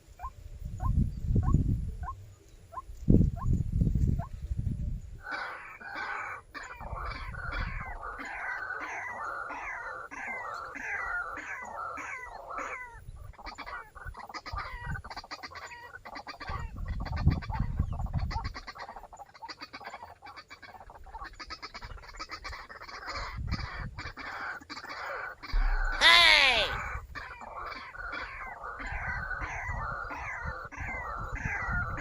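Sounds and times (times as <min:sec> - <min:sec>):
waterhen calling: 0:24.2 - 0:32.0.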